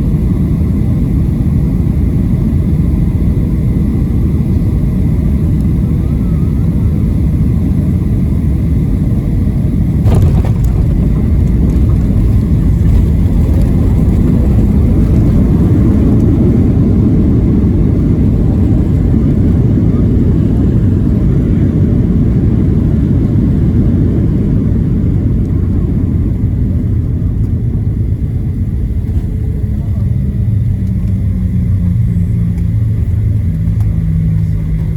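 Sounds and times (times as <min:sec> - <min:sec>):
airplane cabin rumble: 0:00.0 - 0:34.9
sharp thump: 0:10.0 - 0:14.1.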